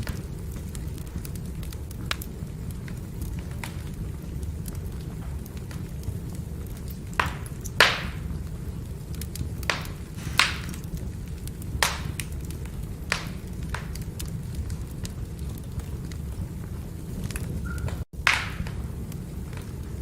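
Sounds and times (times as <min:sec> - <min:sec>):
firewood burning rumble: 0:00.0 - 0:20.0
logs crackling: 0:00.0 - 0:20.0
sharp loud pops: 0:09.7 - 0:10.9, 0:18.3 - 0:18.8.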